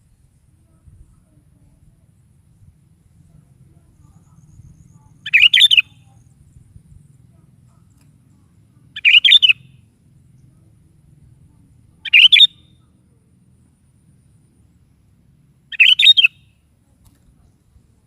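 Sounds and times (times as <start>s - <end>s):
bulbul singing: 3.2s - 16.7s.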